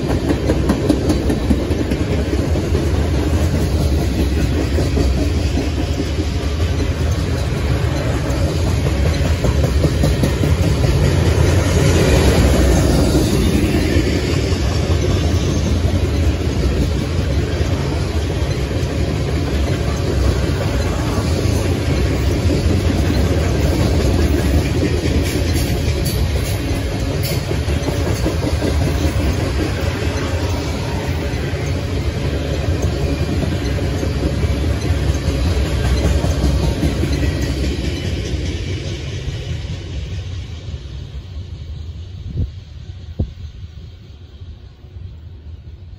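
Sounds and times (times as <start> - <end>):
freight train wheels rumbling: 0.0 - 45.9.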